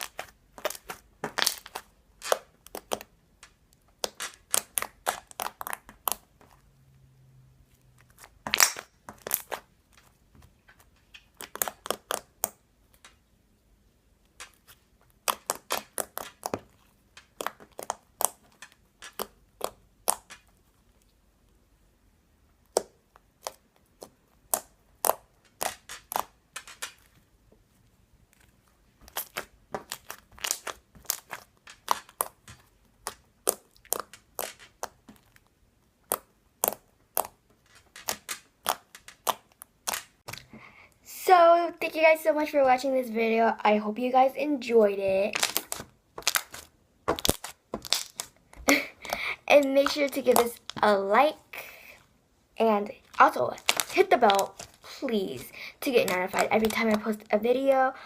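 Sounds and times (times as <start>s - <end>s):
slime clicking and popping: 0.0s - 6.3s, 8.4s - 9.6s, 11.3s - 13.2s, 14.3s - 20.5s, 22.6s - 27.1s, 29.1s - 40.4s, 45.3s - 50.8s.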